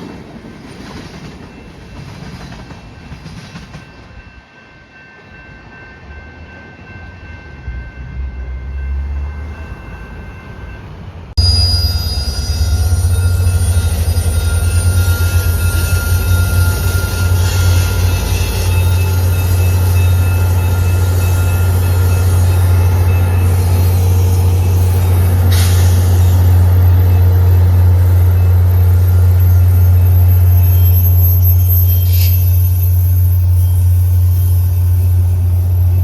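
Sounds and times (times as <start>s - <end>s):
train rumbling past: 0.0s - 36.0s
train wheels squealing: 11.4s - 36.0s
hiss: 25.4s - 26.4s.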